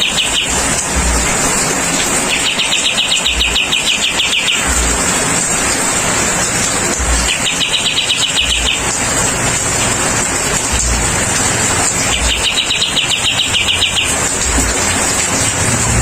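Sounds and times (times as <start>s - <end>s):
bird pulsing trill: 0.0s - 0.8s, 2.0s - 4.9s, 7.2s - 9.3s, 11.6s - 14.6s.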